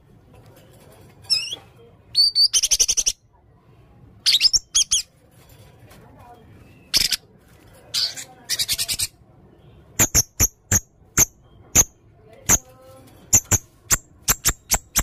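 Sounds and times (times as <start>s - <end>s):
parrot rattling trill: 13.3s - 15.0s
sharp shrill high chirps: 13.3s - 15.0s.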